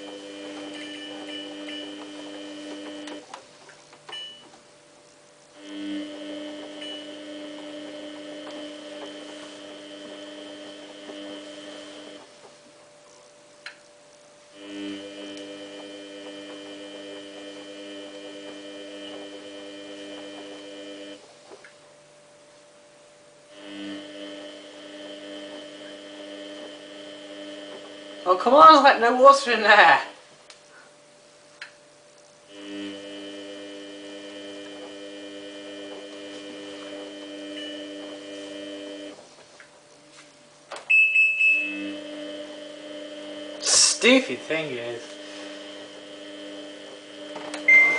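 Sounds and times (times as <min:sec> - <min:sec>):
washing machine electrical hum: 0:00.0 - 0:47.9.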